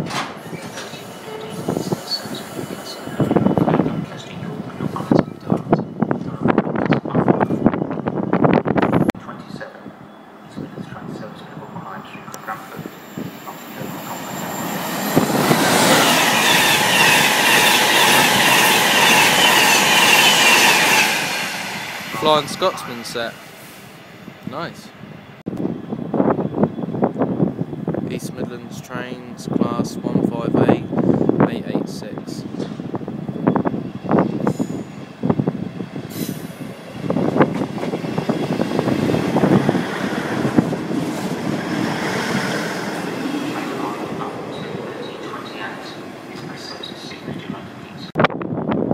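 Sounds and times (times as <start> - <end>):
train rumbling past: 0.0 - 48.9
high ringing of wheels on rails: 33.4 - 35.3.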